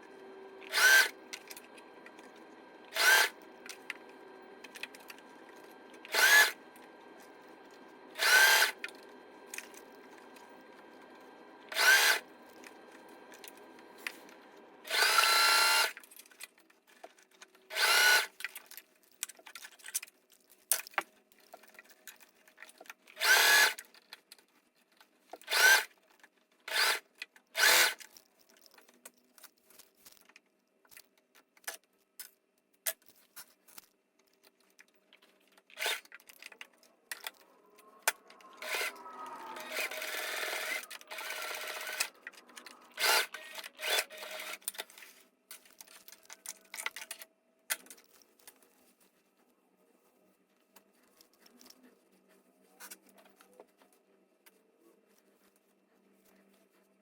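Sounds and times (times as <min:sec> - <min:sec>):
sewing machine stitching: 0:00.1 - 0:16.0, 0:17.7 - 0:18.4, 0:23.2 - 0:23.8, 0:38.2 - 0:44.8.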